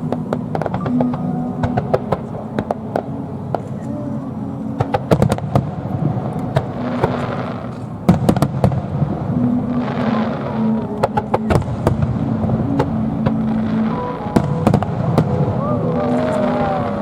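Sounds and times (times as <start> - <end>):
fireworks cracking and crackling: 0.0 - 3.8, 4.8 - 17.0.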